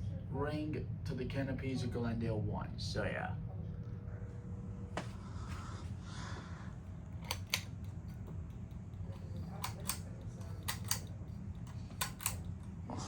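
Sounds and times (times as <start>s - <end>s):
steady low hum: 0.0s - 13.0s
pull-chain switch clicking: 7.2s - 8.0s, 9.5s - 12.6s.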